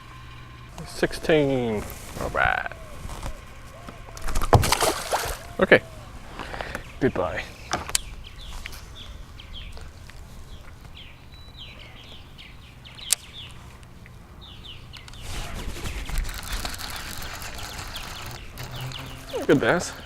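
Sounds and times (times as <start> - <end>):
rustling noise with low rumble: 0.0 - 11.7, 12.4 - 20.0
birds chirping: 0.0 - 20.0
sharp click: 12.9 - 13.4.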